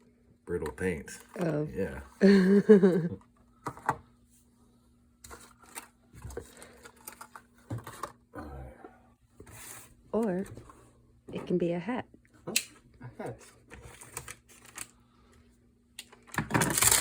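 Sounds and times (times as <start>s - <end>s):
packaging rustling and clicking: 16.0s - 17.0s.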